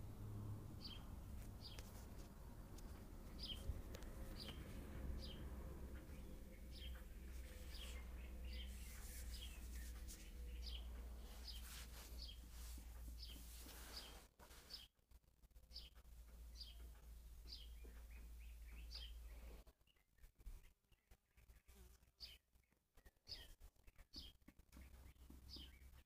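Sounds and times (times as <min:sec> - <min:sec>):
steady low hum: 0:00.0 - 0:14.3
bird chirping: 0:00.0 - 0:14.9, 0:15.7 - 0:26.0.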